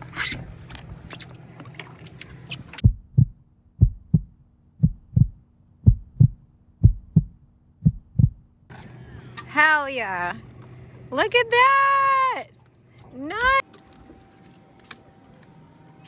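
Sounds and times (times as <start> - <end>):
faint steady hum: 0.0 - 16.0
outdoor background noise: 0.0 - 16.0
heartbeat thumps: 2.8 - 8.5.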